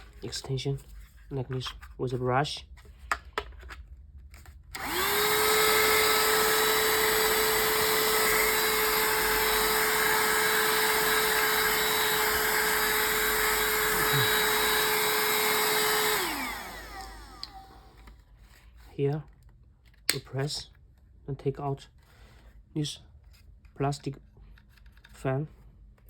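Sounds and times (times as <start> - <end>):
handheld vacuum cleaner whining: 4.7 - 18.1.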